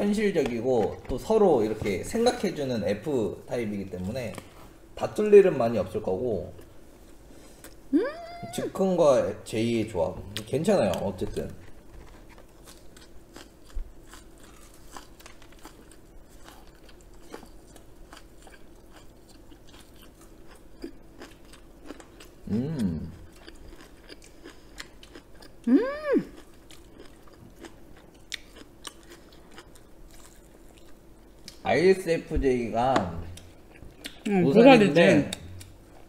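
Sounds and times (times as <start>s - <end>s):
person humming: 7.9s - 8.7s, 22.4s - 23.2s, 25.7s - 26.4s
crunching fried chicken: 10.4s - 25.6s, 26.3s - 31.6s.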